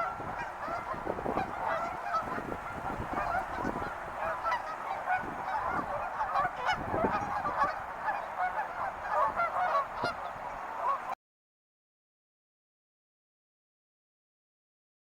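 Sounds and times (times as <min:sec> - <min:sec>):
flock of birds chattering: 0:00.0 - 0:11.2.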